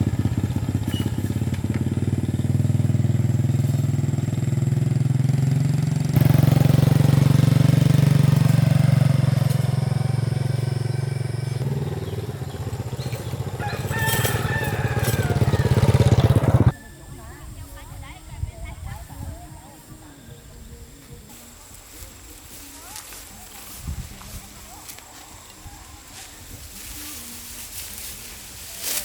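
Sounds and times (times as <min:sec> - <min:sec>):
small engine chugging: 0:00.0 - 0:16.8.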